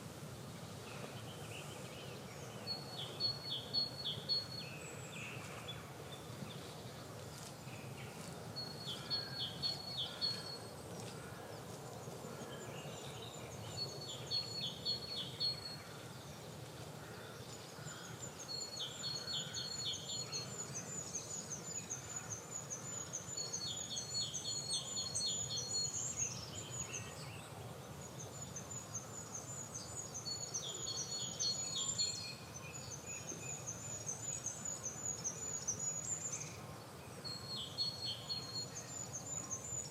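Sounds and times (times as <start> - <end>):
low background noise: 0.0 - 39.9.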